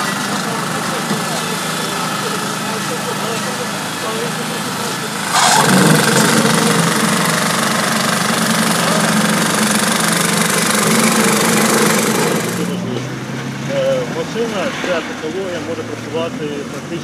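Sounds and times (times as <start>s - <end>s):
machine engine humming: 0.0s - 17.0s.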